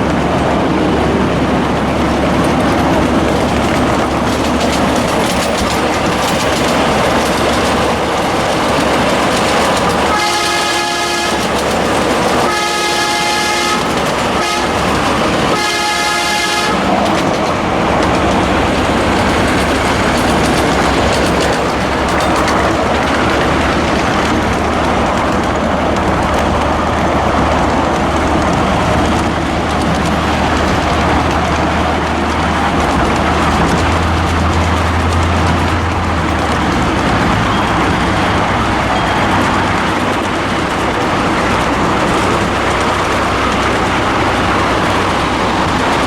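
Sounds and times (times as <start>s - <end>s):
train rumble and rail clatter: 0.0s - 46.0s
locomotive air horn blasts: 10.1s - 17.1s.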